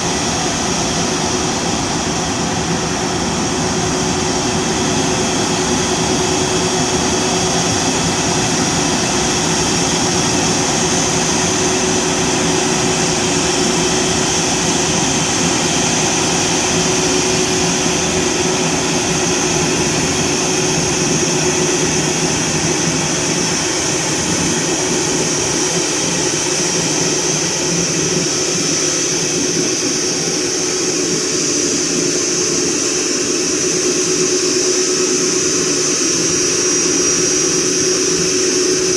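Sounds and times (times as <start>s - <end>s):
jet airliner whine and hiss: 0.0s - 38.9s.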